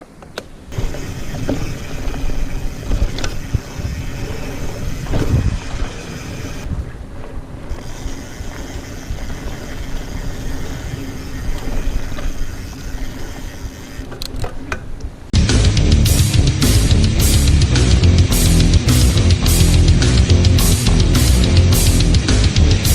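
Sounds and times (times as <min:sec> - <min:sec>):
bike knocks and rattles: 0:00.0 - 0:15.3
wind and rolling rumble: 0:00.0 - 0:15.4.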